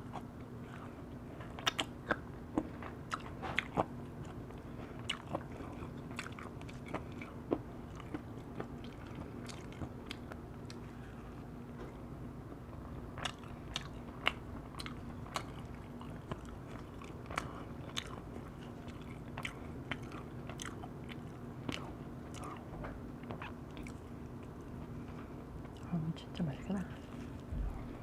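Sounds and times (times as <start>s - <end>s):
person chewing with wet mouth clicks: 1.5s - 10.8s, 13.2s - 24.5s.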